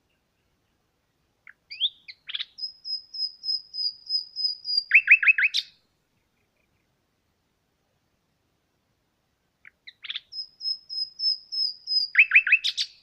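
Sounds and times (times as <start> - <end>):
songbird singing with trill: 1.4 - 7.0, 9.6 - 13.0.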